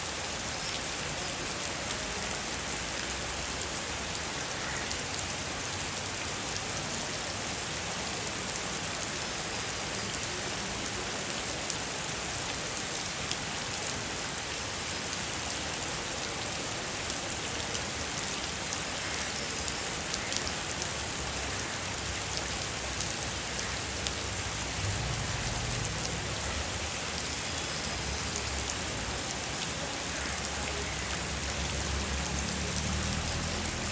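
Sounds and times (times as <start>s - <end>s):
heavy rain hissing: 0.0s - 33.9s
raindrops ticking: 17.1s - 33.9s.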